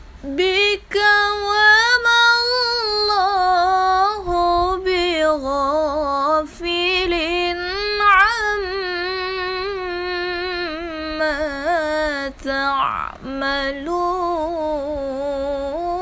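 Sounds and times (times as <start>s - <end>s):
woman chanting recitation: 0.2s - 16.0s.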